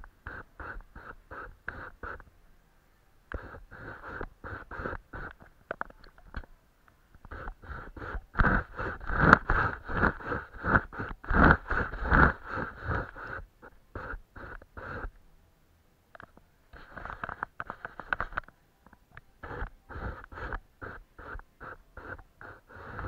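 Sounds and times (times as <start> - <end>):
paintbrush strokes on paper: 0.0 - 2.3, 3.2 - 5.7, 7.2 - 15.2, 19.3 - 23.0.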